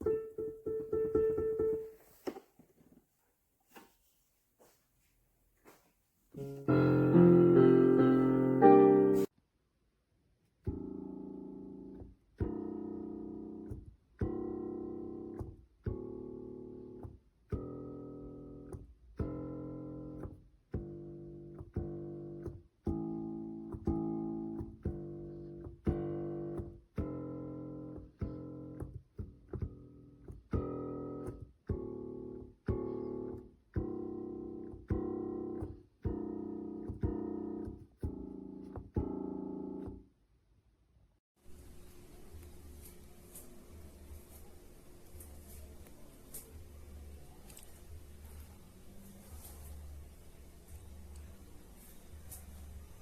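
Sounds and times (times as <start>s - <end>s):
piano chords: 0.0s - 2.0s, 6.4s - 9.3s, 30.6s - 40.0s.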